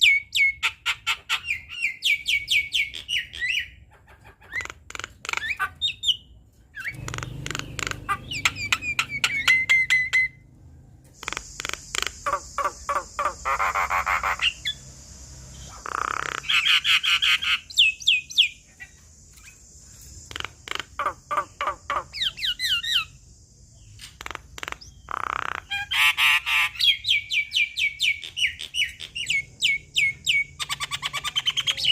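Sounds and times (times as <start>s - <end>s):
myna bird chattering: 0.0s - 10.4s, 11.2s - 23.2s, 23.8s - 31.9s
steady high hiss: 11.2s - 24.4s.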